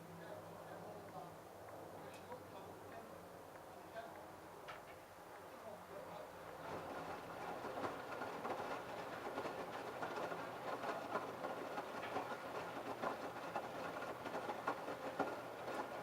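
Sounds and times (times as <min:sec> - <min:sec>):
washing machine running: 0:06.5 - 0:16.0.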